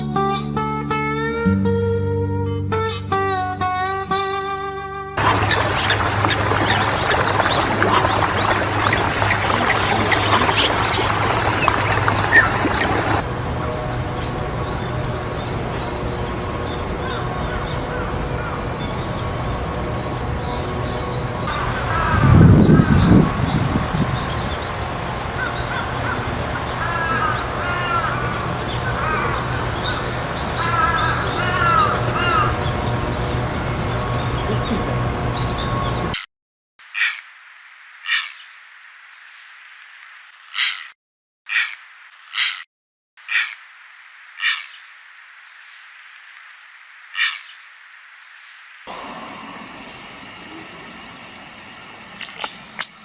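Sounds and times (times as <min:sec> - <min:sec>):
many birds chattering: 0:05.2 - 0:36.2, 0:48.9 - 0:53.0
steady low hum: 0:05.2 - 0:36.2, 0:48.9 - 0:53.0.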